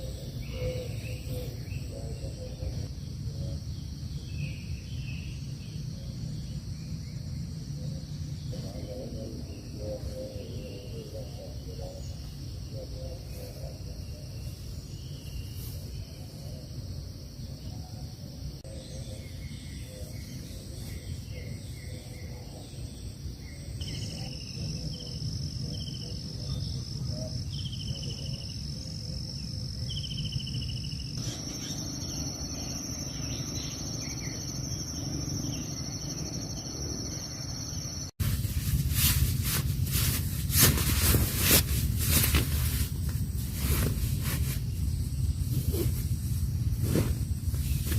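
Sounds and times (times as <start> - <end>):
bird chirps: 0.0 - 16.7, 18.7 - 38.1
high insect drone: 0.0 - 47.9
low outdoor rumble: 31.1 - 47.9.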